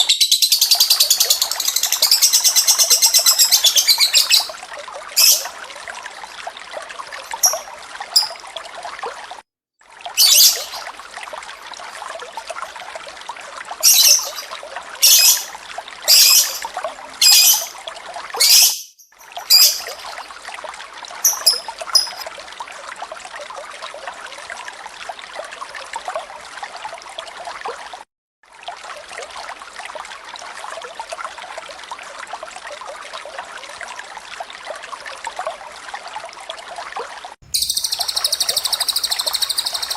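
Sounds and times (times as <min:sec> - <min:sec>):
shrill bird chirps: 0:00.0 - 0:04.6, 0:05.2 - 0:05.5, 0:10.2 - 0:10.8, 0:13.8 - 0:15.5, 0:16.1 - 0:17.8, 0:18.4 - 0:20.2, 0:21.3 - 0:22.2, 0:37.5 - 0:39.9
water trickling: 0:00.4 - 0:39.9.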